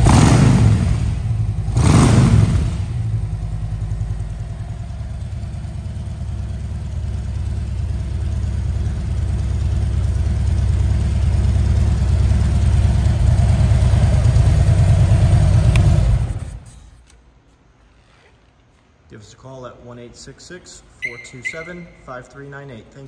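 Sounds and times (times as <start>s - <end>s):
motorcycle engine idling: 0.0s - 16.9s.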